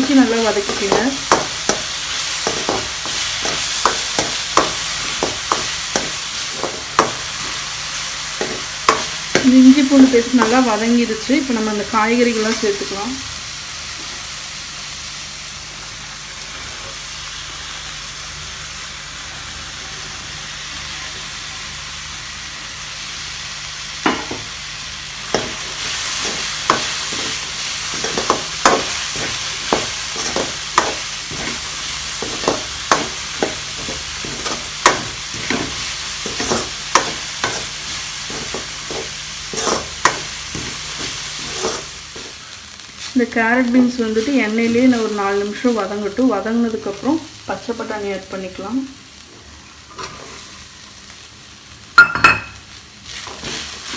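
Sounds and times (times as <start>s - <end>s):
spatula scraping a pan: 0.0s - 10.6s, 25.3s - 42.4s, 49.9s - 50.6s, 53.1s - 53.9s
vegetables sizzling in hot oil: 0.0s - 53.9s.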